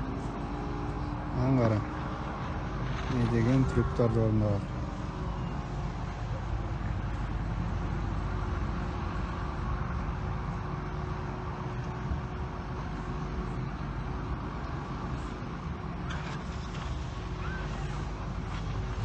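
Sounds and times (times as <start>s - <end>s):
excavator engine rumbling: 0.0s - 19.0s
faint steady hum: 0.0s - 19.0s.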